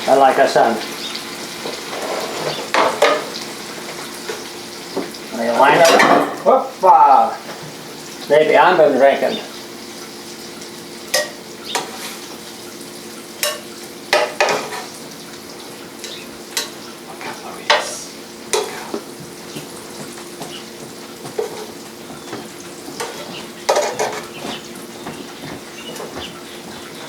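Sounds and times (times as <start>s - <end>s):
metal utensil scraping pan: 1.6s - 4.6s, 5.6s - 6.5s, 11.1s - 12.5s, 13.4s - 15.2s, 16.0s - 19.2s, 21.4s - 21.8s, 23.0s - 24.6s.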